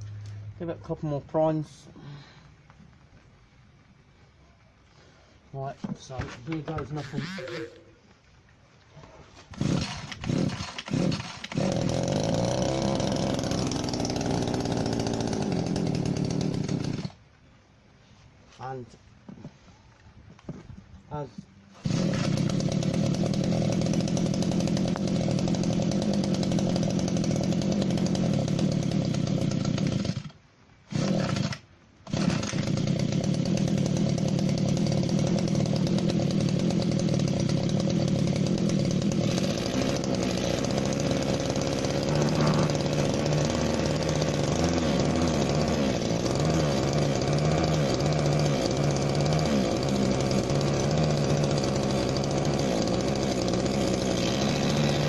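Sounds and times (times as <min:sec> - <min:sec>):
hedge trimmer engine running: 0:06.6 - 0:07.8, 0:09.4 - 0:17.2, 0:21.8 - 0:55.0.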